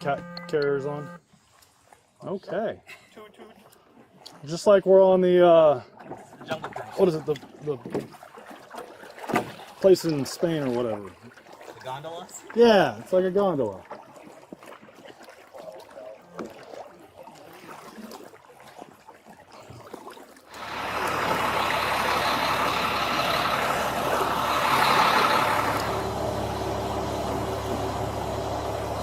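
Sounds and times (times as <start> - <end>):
truck engine running: 20.5 - 29.0.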